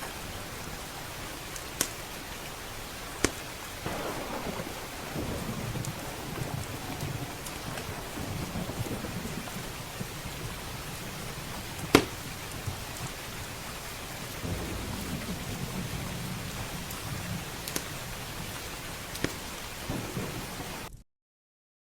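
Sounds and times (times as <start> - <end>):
wood fire crackling: 0.0 - 20.9
steady rain: 0.0 - 21.0
low rolling thunder: 3.7 - 20.9.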